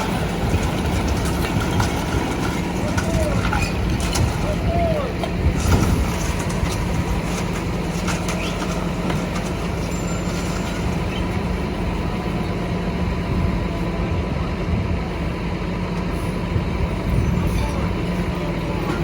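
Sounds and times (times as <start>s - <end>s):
diesel truck engine running: 0.0s - 19.0s.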